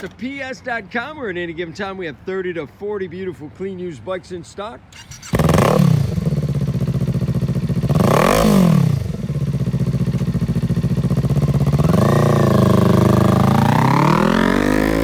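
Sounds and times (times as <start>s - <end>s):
motorcycle engine idling and revving: 5.0s - 15.0s.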